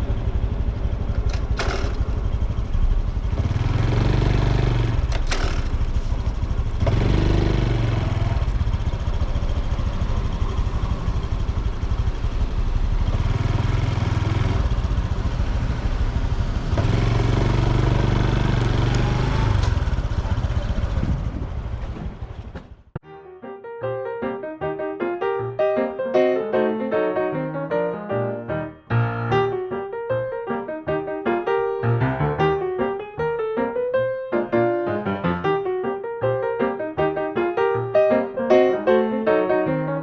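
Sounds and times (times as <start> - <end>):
motorcycle engine revving: 0.0 - 23.0
road and wind noise: 0.0 - 23.0.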